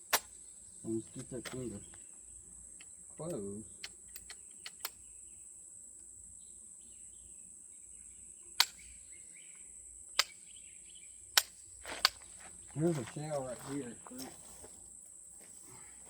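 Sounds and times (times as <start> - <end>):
insects chirring: 0.0 - 16.0
shotgun action clicks: 3.3 - 5.0.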